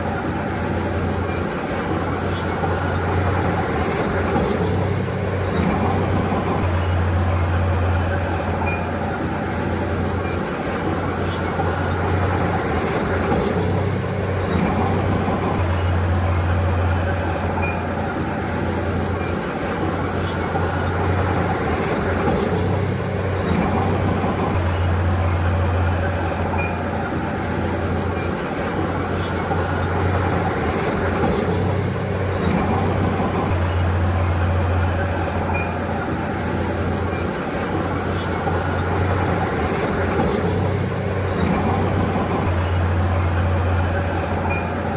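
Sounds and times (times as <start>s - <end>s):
heavy machinery engine drone: 0.0s - 44.9s.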